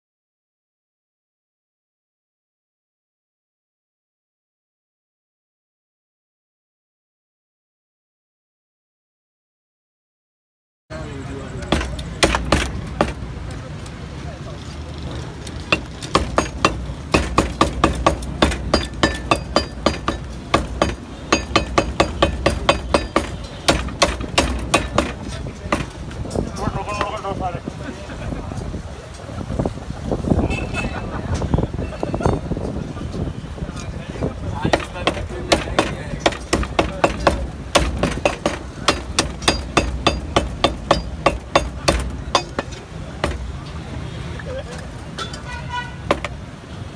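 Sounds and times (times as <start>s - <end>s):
meat cleaver chopping on a block: 11.7s - 13.2s, 15.7s - 26.0s, 34.7s - 43.5s.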